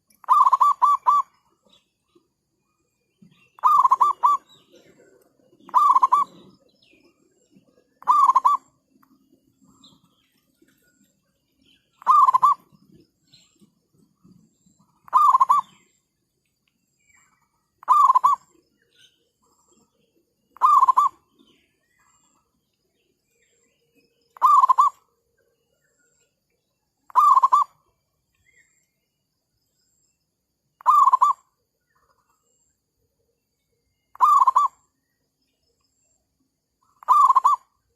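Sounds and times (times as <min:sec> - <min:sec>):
dove trilled cooing: 0:00.2 - 0:01.4, 0:03.2 - 0:08.8, 0:12.0 - 0:13.4, 0:14.8 - 0:15.9, 0:17.8 - 0:18.6, 0:20.6 - 0:21.5, 0:24.4 - 0:25.1, 0:27.1 - 0:27.8, 0:30.8 - 0:31.5, 0:34.1 - 0:34.8, 0:36.8 - 0:37.8.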